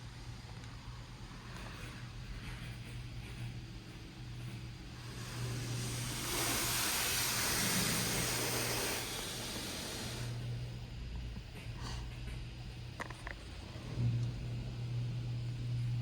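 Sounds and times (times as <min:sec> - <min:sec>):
steady low hum: 0:00.0 - 0:16.0
high-pressure water spray hissing: 0:05.0 - 0:10.6.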